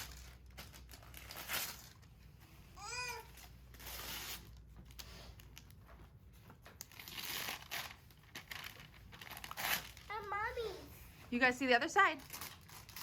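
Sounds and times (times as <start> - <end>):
paper crinkling and tearing: 0.0 - 2.1, 6.8 - 10.5, 12.0 - 13.0.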